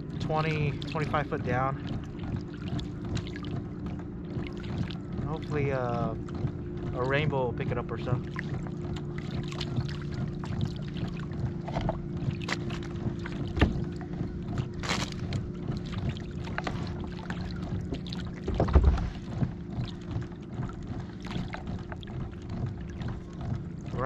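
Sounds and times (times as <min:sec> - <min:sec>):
boat motor humming: 0:00.0 - 0:24.0
knocks and clicks: 0:18.4 - 0:19.8
loud thump: 0:18.5 - 0:19.2.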